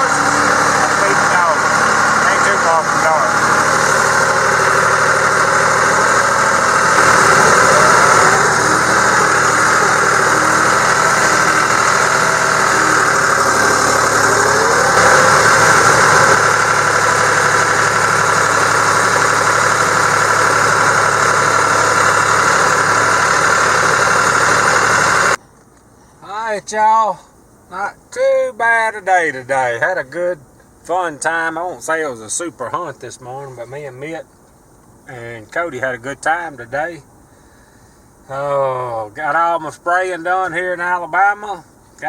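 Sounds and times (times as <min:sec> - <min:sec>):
vehicle engine running: 0:00.0 - 0:25.4.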